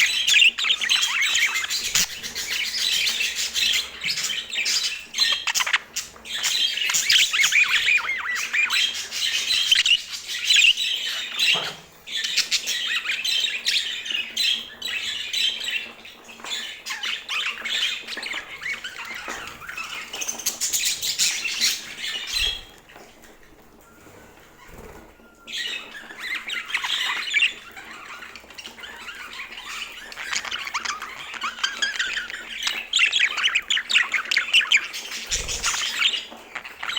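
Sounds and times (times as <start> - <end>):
budgerigars chattering and squawking: 0.0 - 23.6, 24.6 - 36.9.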